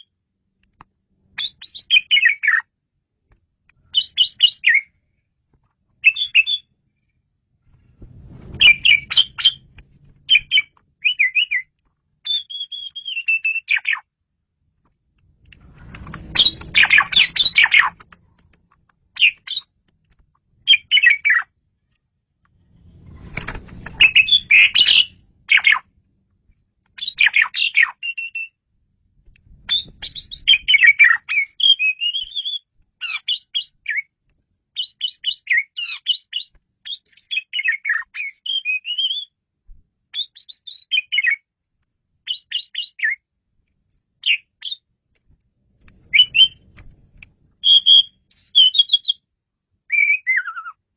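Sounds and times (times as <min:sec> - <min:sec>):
starling singing: 0:08.6 - 0:09.6, 0:16.4 - 0:18.0, 0:47.6 - 0:49.2.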